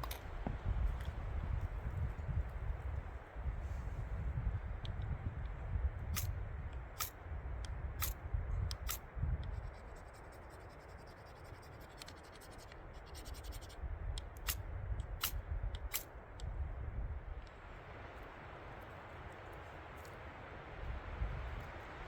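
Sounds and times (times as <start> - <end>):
wind on microphone: 0.0 - 17.5, 20.7 - 22.0
sharp scratching strokes: 8.0 - 13.8.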